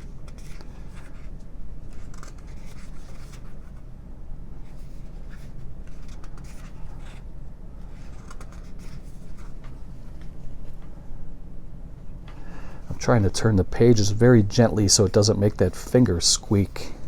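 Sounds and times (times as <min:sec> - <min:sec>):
paper pages turning: 0:00.0 - 0:03.9, 0:04.6 - 0:10.8.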